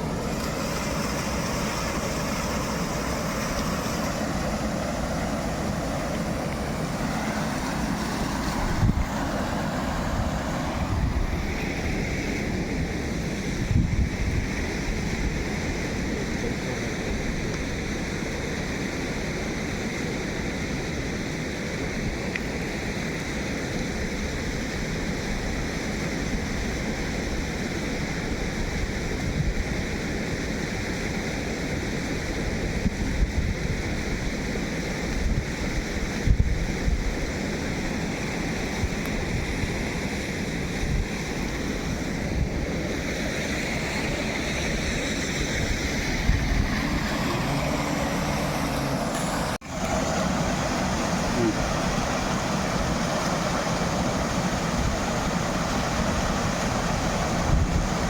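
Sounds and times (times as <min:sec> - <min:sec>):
steady rushing noise: 0:00.0 - 0:15.9, 0:40.8 - 0:58.0.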